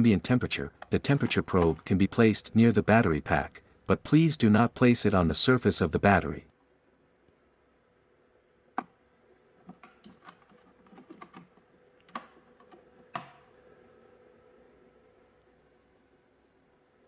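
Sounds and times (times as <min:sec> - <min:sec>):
faint steady hum: 0:00.0 - 0:17.0
light clicks and taps: 0:09.6 - 0:13.6.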